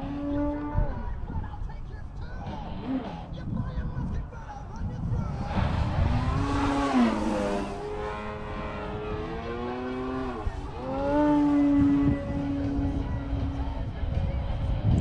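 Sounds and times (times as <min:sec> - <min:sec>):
model airplane propeller drone: 0:04.8 - 0:15.0.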